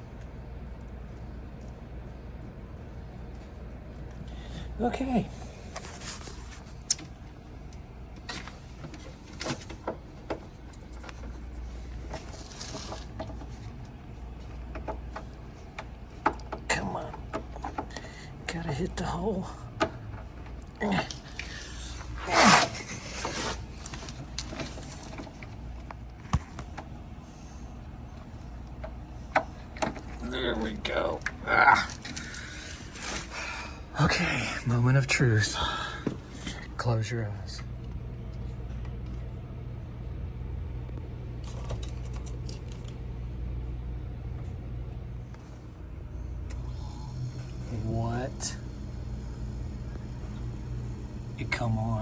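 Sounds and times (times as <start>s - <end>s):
wires rustling: 0.0s - 33.9s
refrigerator electrical hum: 0.0s - 52.0s
scraping rustle: 5.4s - 6.8s, 10.8s - 13.7s.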